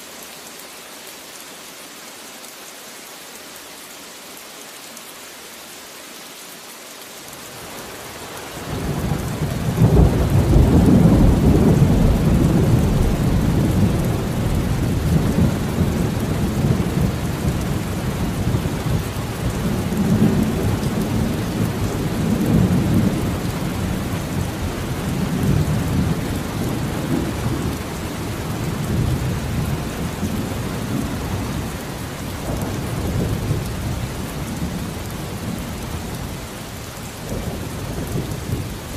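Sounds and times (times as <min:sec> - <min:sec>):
steady rain: 0:00.0 - 0:38.9
rolling thunder: 0:08.9 - 0:31.7.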